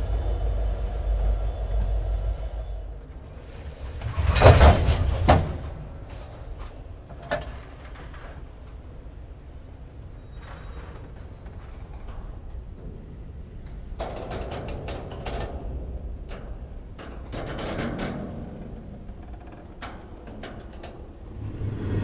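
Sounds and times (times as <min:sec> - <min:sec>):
freight train wheels rumbling: 0:00.0 - 0:22.0
loud metallic clanks: 0:03.8 - 0:07.0.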